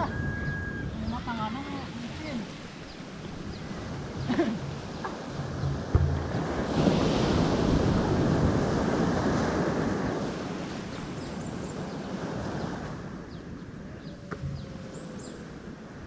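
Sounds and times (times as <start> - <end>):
sea water washing: 0.0 - 16.0
wind buffeting microphone: 0.0 - 16.0
sharp knock: 5.7 - 6.4.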